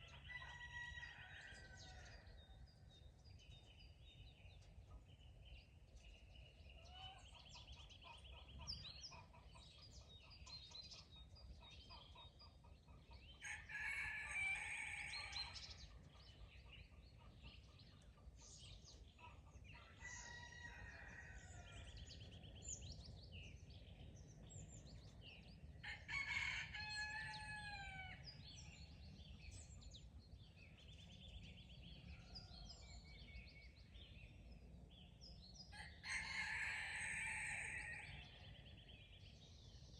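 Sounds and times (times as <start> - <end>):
songbirds trilling and chirping: 0.0 - 39.9
rooster crowing: 13.4 - 15.6, 25.9 - 28.2, 35.9 - 38.3.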